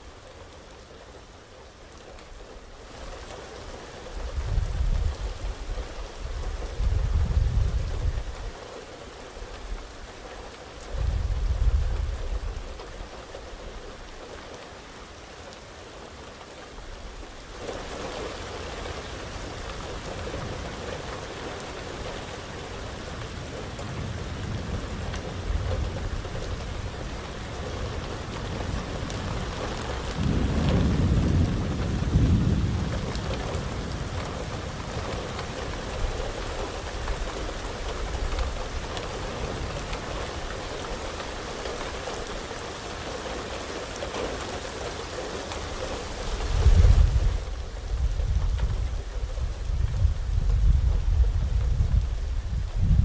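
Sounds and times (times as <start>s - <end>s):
heavy rain falling: 0.0s - 53.0s
thunder rumbling: 23.9s - 41.1s, 46.1s - 53.0s.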